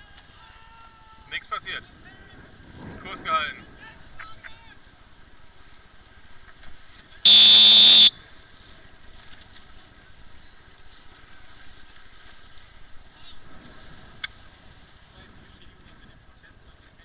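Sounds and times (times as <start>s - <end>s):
signal horn blast: 7.3s - 8.1s.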